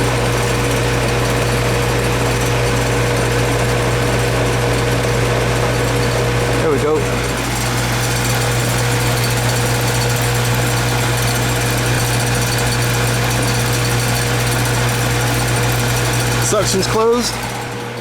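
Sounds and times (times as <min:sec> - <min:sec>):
compressor hum: 0:00.0 - 0:18.0
fan noise: 0:00.0 - 0:18.0.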